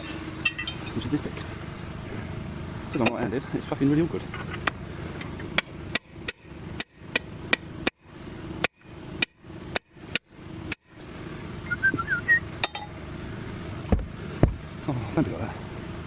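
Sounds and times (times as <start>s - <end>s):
ringing metal clink: 0.4s - 1.0s, 12.6s - 12.9s
hammer striking metal: 12.6s - 13.0s.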